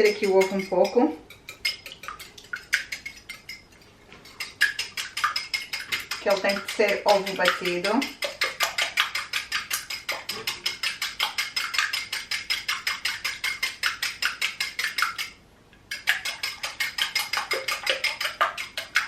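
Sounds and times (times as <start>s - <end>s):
metal utensil clinking against bowl: 0.0s - 3.6s, 4.2s - 8.6s.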